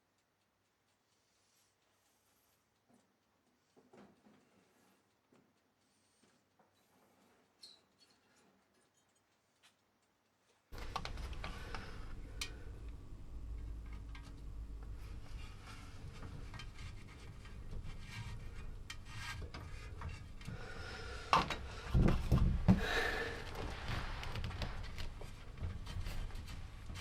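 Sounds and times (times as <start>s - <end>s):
rubbing and scraping handling noise: 10.5s - 27.0s
low steady rumble: 10.8s - 27.0s.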